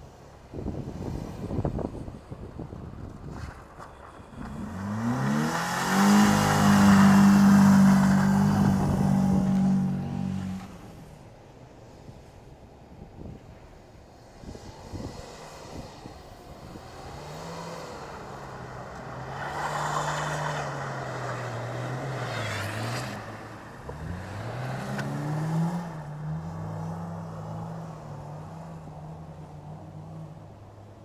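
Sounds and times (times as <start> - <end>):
car engine revving: 4.4 - 11.1, 15.0 - 30.6.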